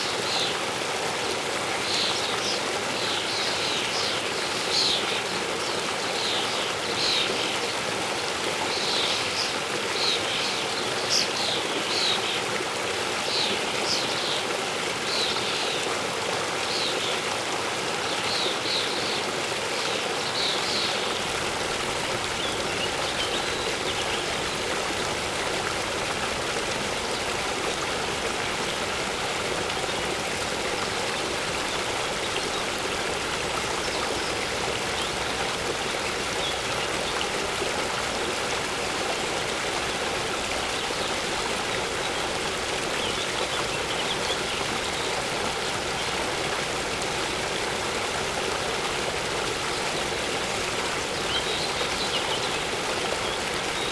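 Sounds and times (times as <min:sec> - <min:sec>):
waterfall rushing: 0:19.9 - 0:53.9.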